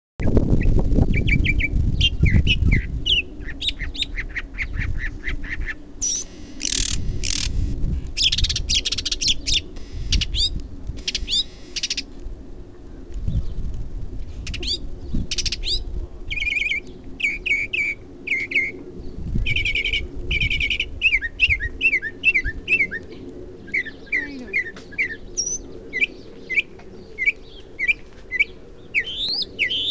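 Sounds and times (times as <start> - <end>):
wind rumble on microphone: 0.2 - 29.9
bird singing varied phrases: 0.6 - 12.1, 23.7 - 29.9.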